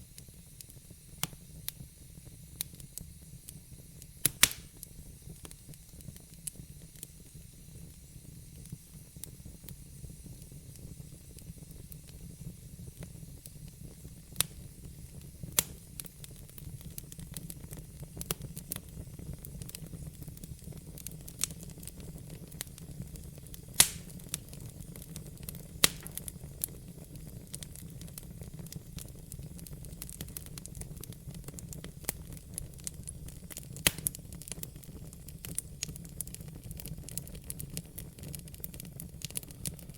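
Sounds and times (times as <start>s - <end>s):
log fire rumbling: 0.2s - 39.9s
wood crackling and popping: 2.6s - 7.2s, 12.9s - 39.9s.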